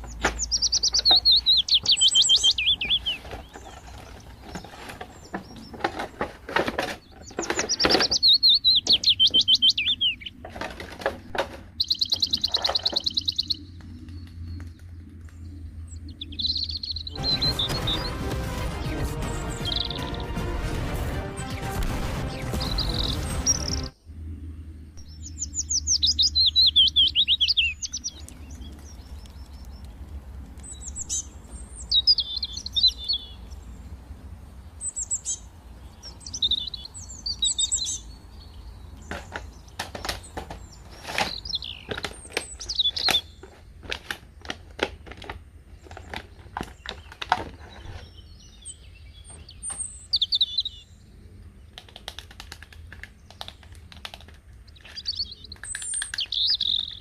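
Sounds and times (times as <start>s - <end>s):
bird chirping warbled phrases: 0.0s - 4.5s, 7.0s - 10.4s, 11.8s - 18.2s, 19.1s - 20.4s, 22.3s - 33.9s, 34.7s - 43.4s, 54.6s - 57.0s.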